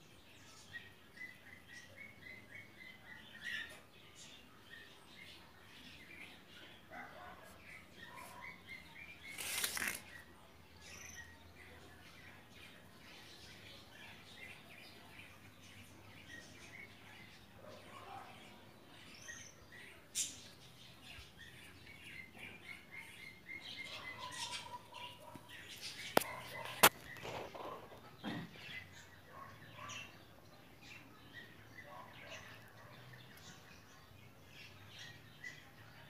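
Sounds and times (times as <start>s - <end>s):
small birds chirping: 0.0s - 36.0s
rustling: 9.2s - 10.2s.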